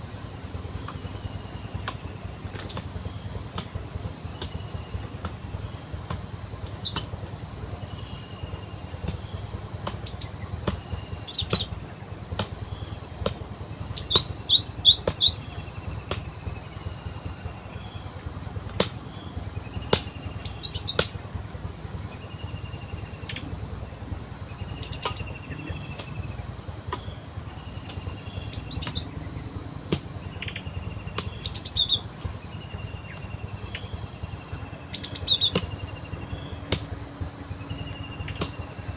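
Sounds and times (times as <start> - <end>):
insect drone: 0.0 - 38.9.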